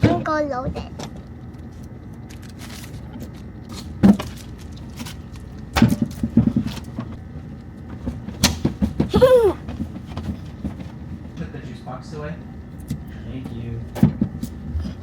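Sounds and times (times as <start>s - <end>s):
objects knocking in refrigerator: 0.0s - 1.2s, 3.1s - 7.2s, 7.8s - 11.5s, 12.9s - 14.9s.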